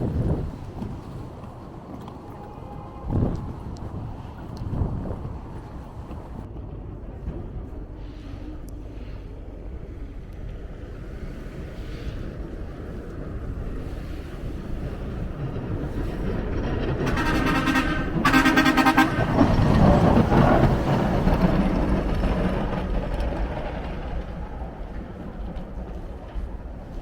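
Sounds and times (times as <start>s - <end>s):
street traffic: 0.0s - 27.0s
vehicle horn honking: 17.1s - 19.4s.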